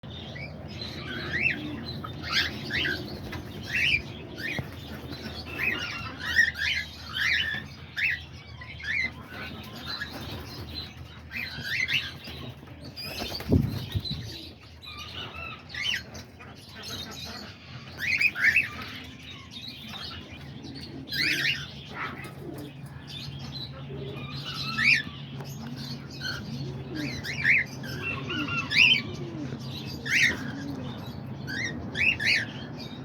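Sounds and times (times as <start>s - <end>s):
small birds chirping and chattering: 0.0s - 33.0s
bird wings flapping: 13.0s - 14.3s.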